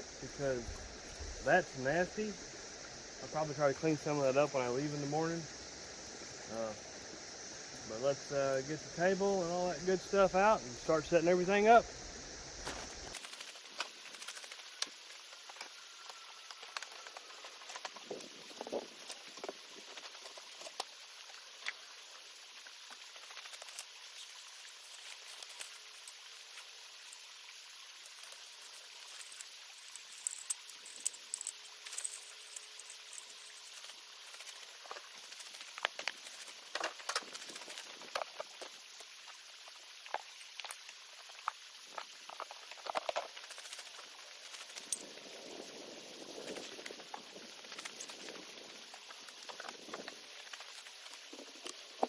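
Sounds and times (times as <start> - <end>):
creek running: 0.0 - 52.0
small clicks and knocks: 29.1 - 33.3.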